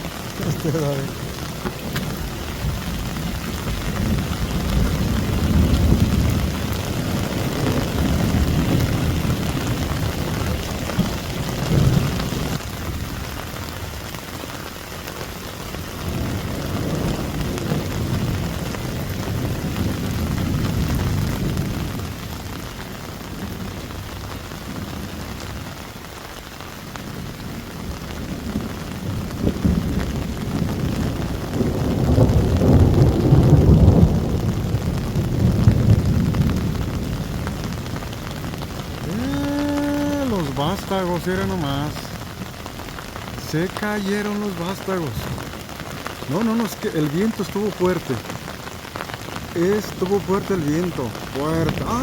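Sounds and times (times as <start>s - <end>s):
heavy rain pouring: 0.0s - 52.0s
low rumbles: 28.4s - 52.0s.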